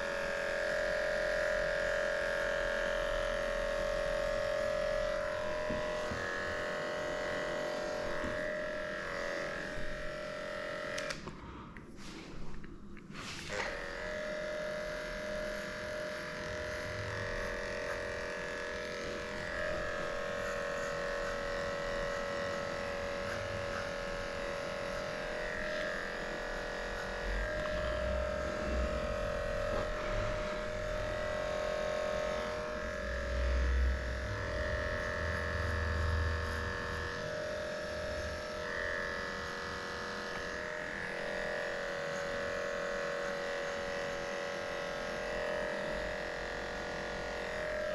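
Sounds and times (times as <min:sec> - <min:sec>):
electric clippers humming: 0:00.0 - 0:11.4, 0:13.2 - 0:47.9.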